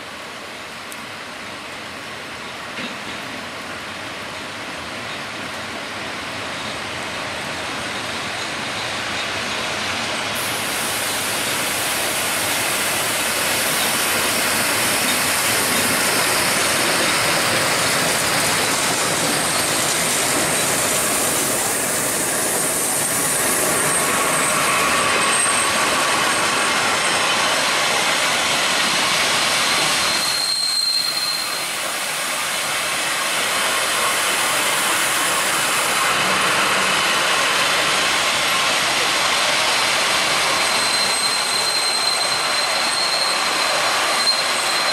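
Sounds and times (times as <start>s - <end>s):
train wheels rumbling on rails: 0.1s - 44.9s
high wheel squeals: 13.6s - 27.5s, 29.9s - 31.9s, 40.5s - 44.9s.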